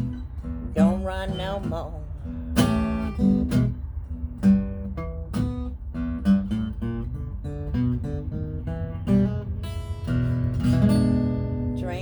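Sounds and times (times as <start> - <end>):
acoustic guitar picking and strumming: 0.0 - 12.0.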